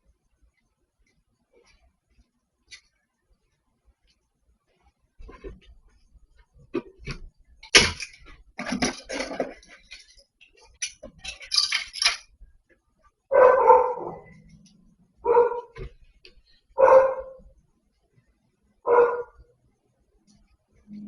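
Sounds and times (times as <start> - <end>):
clattering and knocking: 6.6 - 12.4
dog barking: 13.3 - 14.4, 15.2 - 15.8, 16.8 - 17.4, 18.8 - 19.5.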